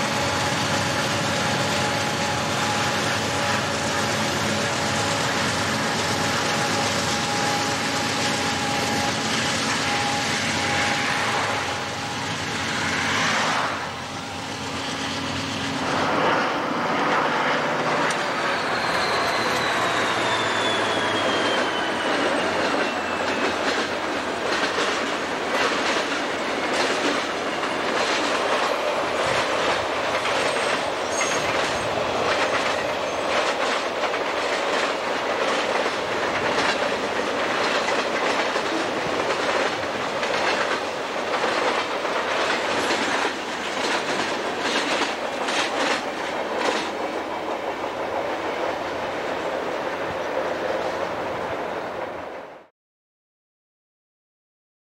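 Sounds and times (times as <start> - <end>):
freight train cars rolling: 0.0 - 52.5
squealing train wheels: 0.0 - 52.7
wheels clacking over rail joints: 14.6 - 48.9.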